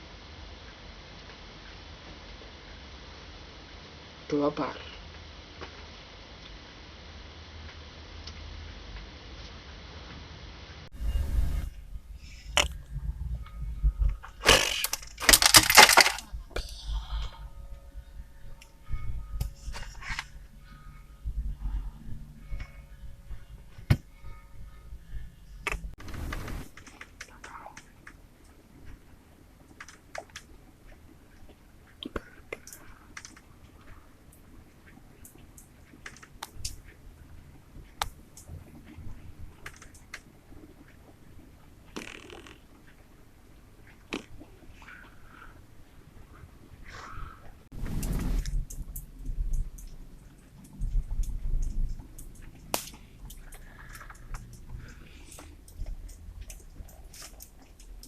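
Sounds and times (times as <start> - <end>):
low rumble: 10.9 - 15.3, 16.0 - 26.6, 47.2 - 57.1
sharp cracks and scraping: 12.3 - 16.7, 25.6 - 28.2, 47.7 - 58.0.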